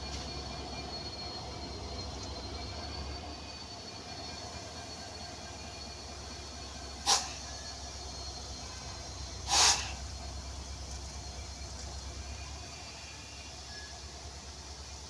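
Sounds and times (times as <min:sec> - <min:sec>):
train rumbling: 0:00.0 - 0:15.0
loud air hiss: 0:07.0 - 0:07.5, 0:09.4 - 0:10.1.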